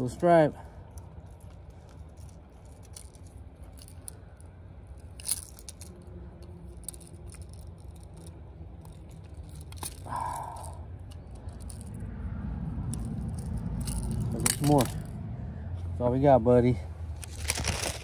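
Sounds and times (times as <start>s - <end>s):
low steady rumble: 0.0s - 18.0s
fishing tackle clicking and rattling: 0.8s - 12.1s, 12.8s - 15.1s.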